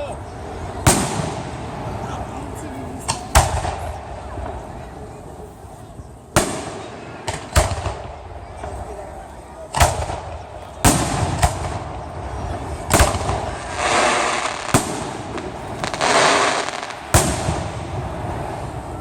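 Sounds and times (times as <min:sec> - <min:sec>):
fireworks bangs: 0:00.0 - 0:05.1, 0:06.2 - 0:19.0
fireworks hissing: 0:05.4 - 0:19.0.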